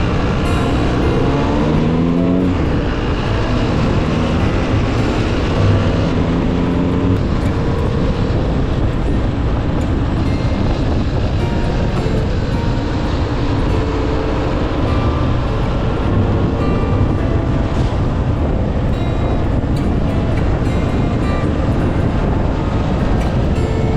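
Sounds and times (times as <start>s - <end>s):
two-stroke engine revving: 0.0s - 8.8s.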